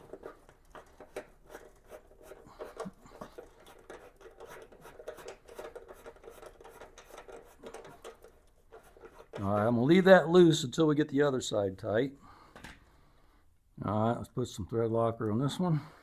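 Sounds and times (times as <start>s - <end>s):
nut driver clicking and scraping: 0.0s - 9.7s.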